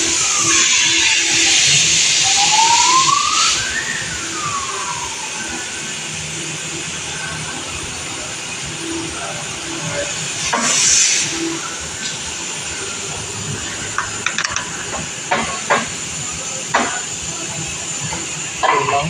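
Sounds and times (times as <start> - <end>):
burst of hissing air: 10.4 - 11.6.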